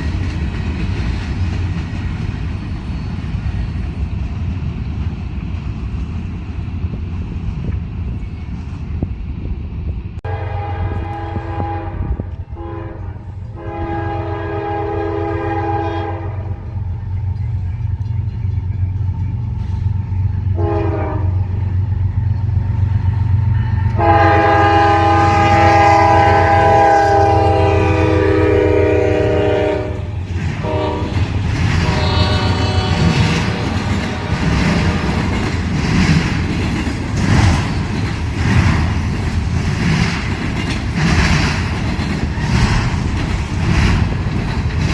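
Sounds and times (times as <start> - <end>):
train wheels clattering on rails: 0.0 - 9.3, 16.5 - 44.9
locomotive rumble: 0.0 - 44.9
locomotive air horn blasts: 10.2 - 16.6, 20.6 - 21.5, 23.9 - 35.2.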